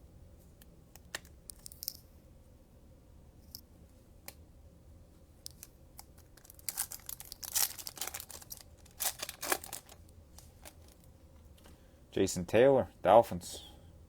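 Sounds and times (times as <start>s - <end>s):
plastic wrapper crinkling and tearing: 5.5s - 11.1s.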